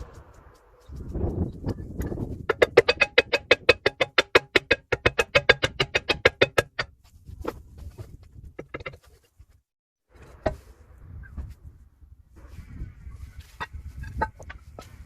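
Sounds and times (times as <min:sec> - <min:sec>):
rapid ringing metallic knocks: 0:02.5 - 0:06.9.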